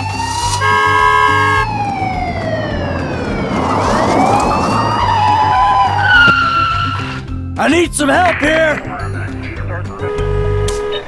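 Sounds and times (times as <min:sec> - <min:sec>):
emergency siren wailing: 0:00.0 - 0:07.2
second siren wailing: 0:00.0 - 0:07.2.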